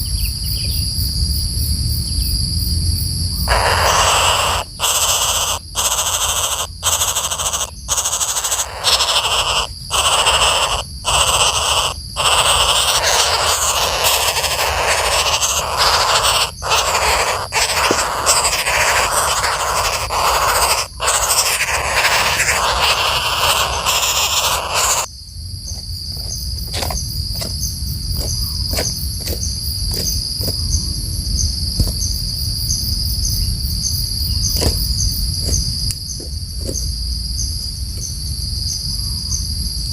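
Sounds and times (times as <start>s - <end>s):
pulsing insect trill: 0.0s - 39.9s
loud harsh bird squawking: 3.4s - 25.1s.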